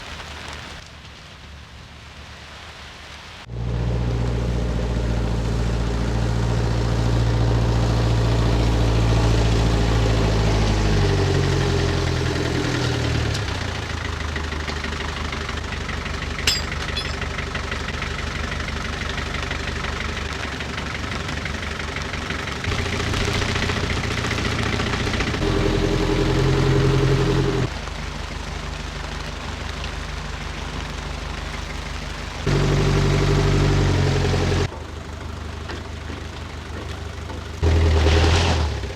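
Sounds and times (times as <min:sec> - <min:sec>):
vehicle engine revving: 0:03.5 - 0:27.9, 0:32.4 - 0:34.7, 0:37.6 - 0:38.9.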